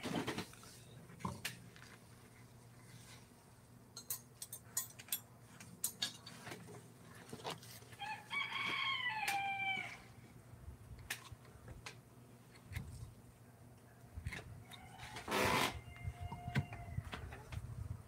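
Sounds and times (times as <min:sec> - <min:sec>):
rooster crowing: 0:08.0 - 0:10.1, 0:14.6 - 0:17.2.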